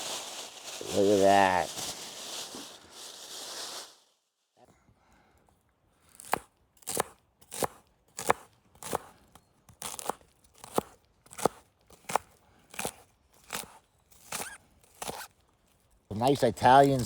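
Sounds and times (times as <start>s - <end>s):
knife chopping food: 6.2s - 9.0s.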